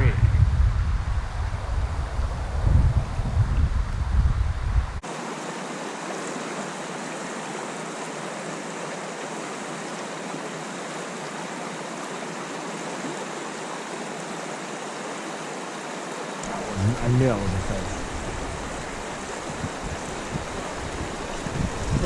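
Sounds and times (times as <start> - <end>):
creek water running: 5.0 - 22.0.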